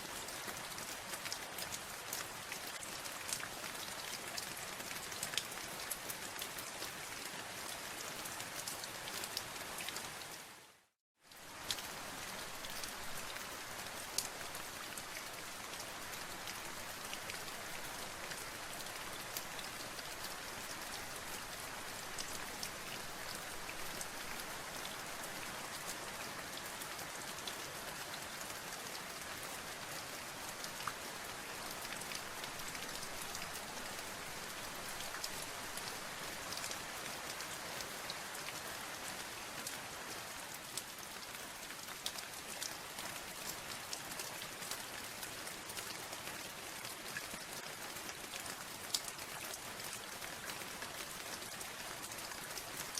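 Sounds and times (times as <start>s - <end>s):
rain pattering: 11.3s - 52.9s.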